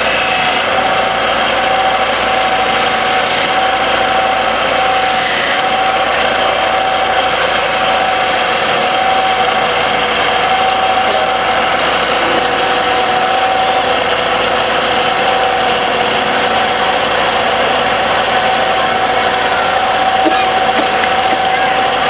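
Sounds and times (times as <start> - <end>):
wood lathe whining: 0.0 - 22.0.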